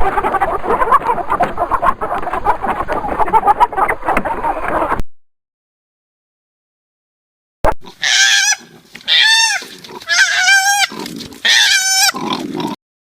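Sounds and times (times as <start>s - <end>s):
farm animal calling: 0.0s - 4.9s, 7.9s - 12.6s.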